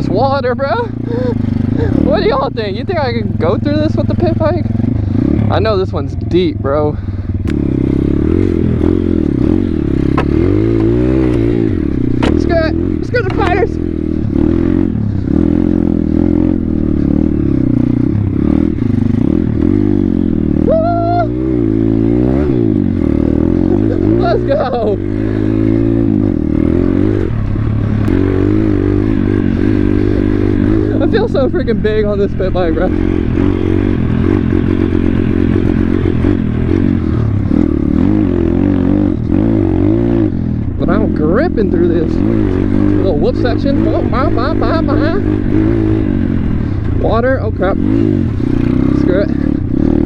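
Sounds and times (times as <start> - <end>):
small motorbike engine revving: 0.0 - 50.0.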